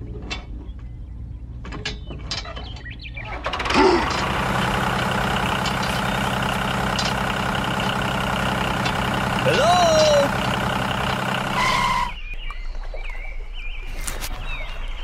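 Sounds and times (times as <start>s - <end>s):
toy tractor engine sound: 3.3s - 12.2s.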